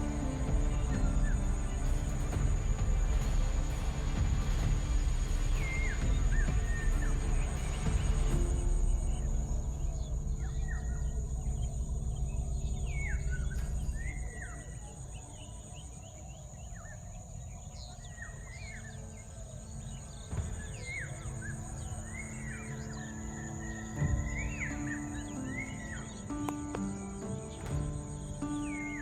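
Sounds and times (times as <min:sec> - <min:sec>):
low rumble: 0:00.0 - 0:15.8
high-pitched insect drone: 0:00.0 - 0:29.0.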